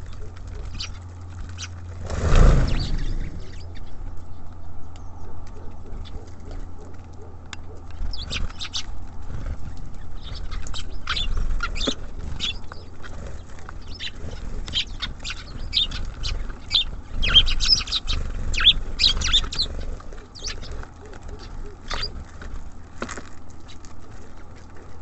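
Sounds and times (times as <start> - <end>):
steady low rumble: 0.0 - 7.5
songbirds chirping and twittering: 0.0 - 25.0.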